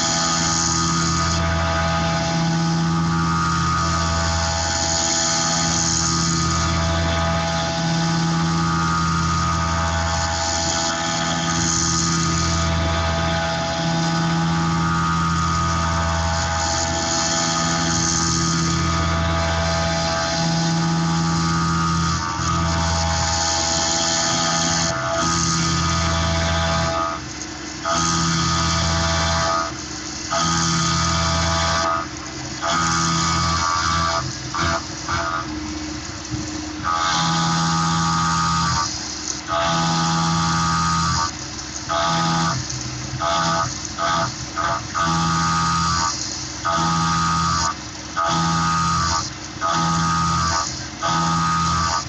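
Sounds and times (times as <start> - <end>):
milling machine cutting metal: 0.0 - 52.0.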